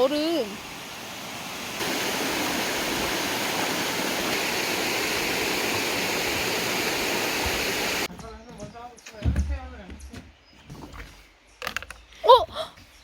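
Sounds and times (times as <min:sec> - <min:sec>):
stream water rushing: 0:00.0 - 0:08.1.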